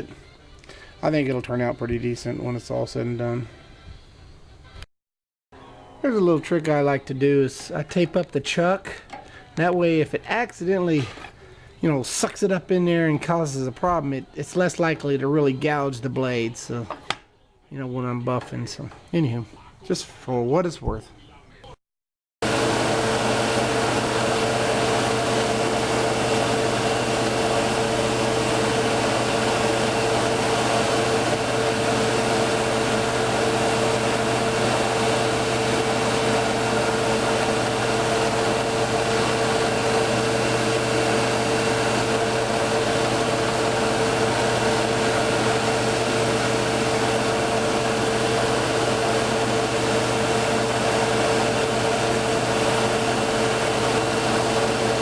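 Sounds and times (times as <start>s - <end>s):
drill motor whine: 22.5s - 55.0s.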